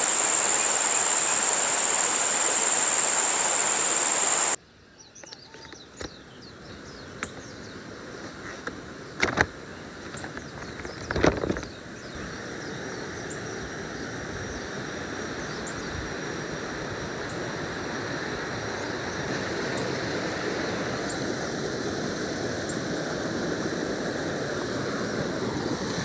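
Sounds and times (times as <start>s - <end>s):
river water rushing: 0.0s - 4.6s.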